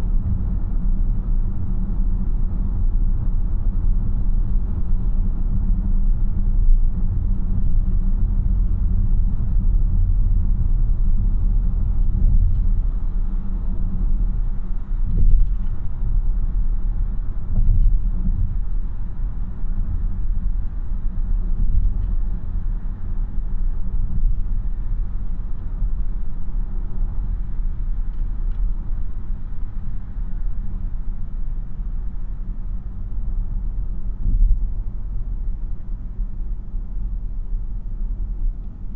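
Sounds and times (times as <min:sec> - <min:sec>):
road and tyre rumble in car: 0:00.0 - 0:38.9.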